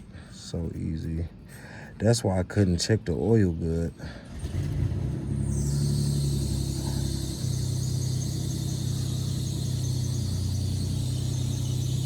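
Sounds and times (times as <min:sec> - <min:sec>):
vehicle engine idling: 0:04.2 - 0:12.0
faint high-pitched whine: 0:05.4 - 0:12.0.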